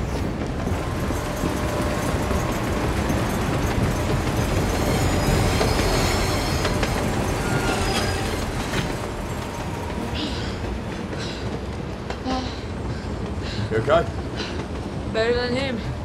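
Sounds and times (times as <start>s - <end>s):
train wheels rumbling and clattering: 0.0s - 16.0s
high wheel squeals: 0.7s - 11.5s.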